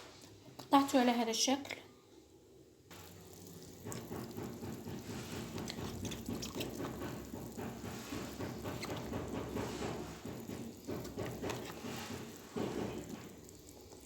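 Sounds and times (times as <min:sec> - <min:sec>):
tap water running and splashing: 0:02.9 - 0:14.0
water drips and spatters: 0:02.9 - 0:14.0.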